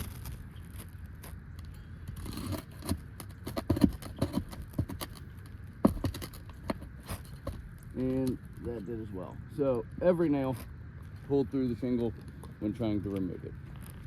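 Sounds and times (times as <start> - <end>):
pry bar clicks and scrapes on shingles: 1.6 - 8.4.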